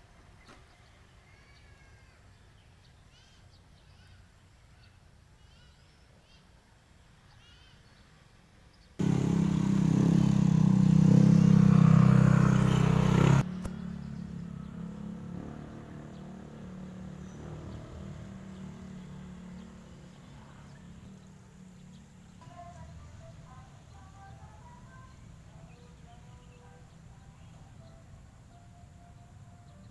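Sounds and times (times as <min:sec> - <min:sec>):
vehicle engine humming: 0:09.0 - 0:29.9.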